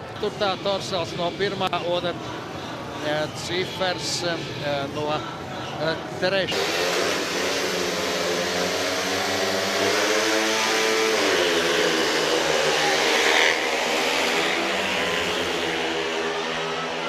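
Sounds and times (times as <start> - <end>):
motorcycle engines revving: 5.8 - 17.0.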